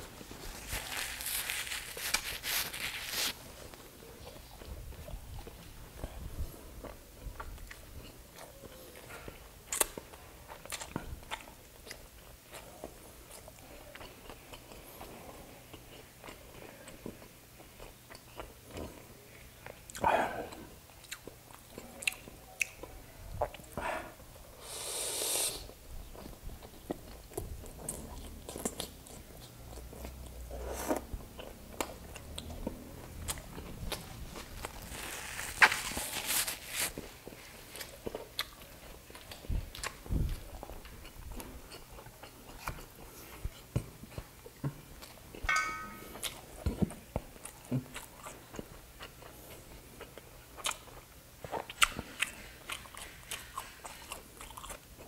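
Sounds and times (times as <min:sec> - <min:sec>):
tissue rubbing against nose: 0:00.2 - 0:03.4, 0:34.3 - 0:37.6
wet chewing and biting: 0:26.1 - 0:44.3, 0:50.0 - 0:55.0
lip smacks and mouth clicks: 0:50.6 - 0:54.8.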